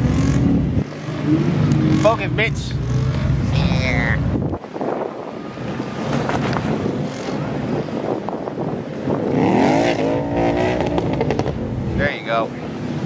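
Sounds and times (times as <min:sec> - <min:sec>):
rumble of running engines: 0:00.0 - 0:13.0
car engine revving hard: 0:09.2 - 0:11.6.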